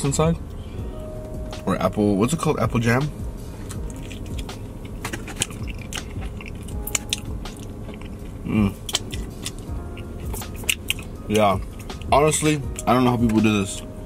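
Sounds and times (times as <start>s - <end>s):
chewing: 3.6s - 12.1s
wet mouth clicks and lip smacks: 3.7s - 11.1s.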